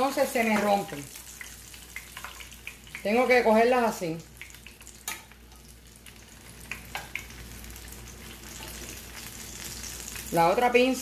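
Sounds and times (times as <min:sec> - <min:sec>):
fritters sizzling in oil: 0:00.0 - 0:11.0.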